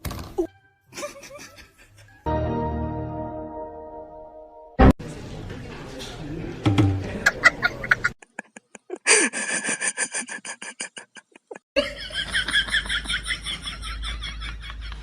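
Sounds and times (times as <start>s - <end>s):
high-pitched laughter: 0.9s - 2.3s, 7.4s - 15.0s.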